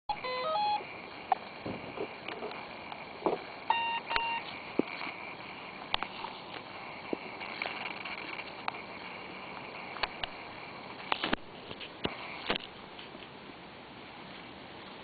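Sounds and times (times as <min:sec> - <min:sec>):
short electronic beeps: 0:00.1 - 0:00.8, 0:03.7 - 0:04.5.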